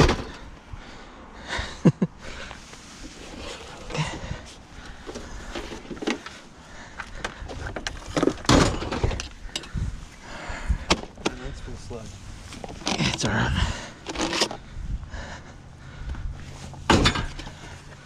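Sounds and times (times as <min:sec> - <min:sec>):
hard objects knocking and clunking: 0:07.1 - 0:09.8, 0:16.9 - 0:17.6.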